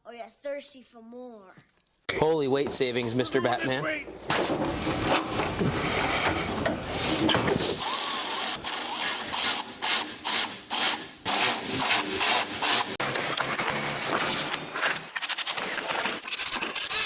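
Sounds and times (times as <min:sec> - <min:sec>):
handling clatter: 0:02.5 - 0:07.8.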